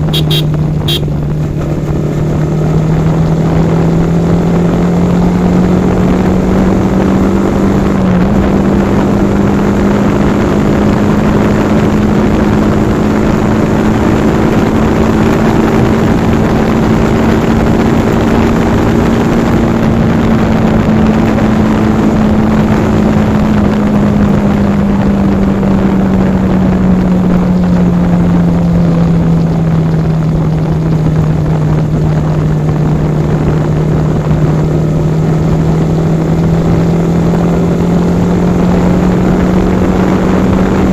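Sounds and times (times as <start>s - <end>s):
motorcycle engine cruising: 0.0s - 40.9s
wind and road noise: 0.0s - 40.9s.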